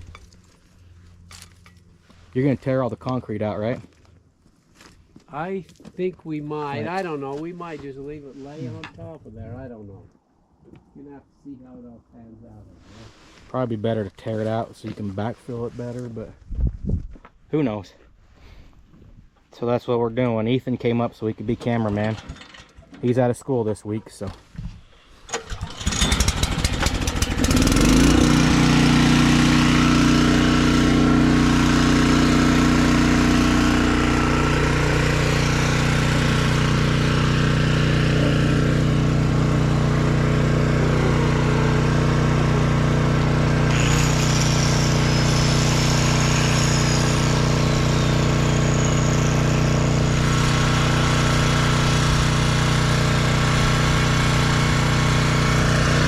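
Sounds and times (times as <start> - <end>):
engine cranking and running: 25.2 - 56.0.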